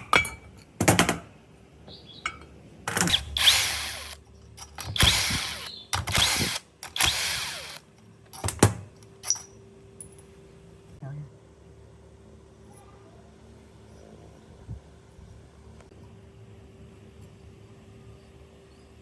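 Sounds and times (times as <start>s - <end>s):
power drill whirring: 3.0s - 7.8s.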